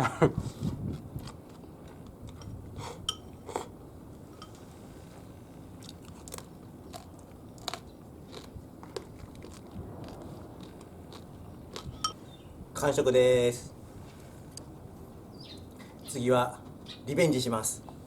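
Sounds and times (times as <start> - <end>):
person chewing crunchy food: 0.5 - 3.8, 5.7 - 12.1.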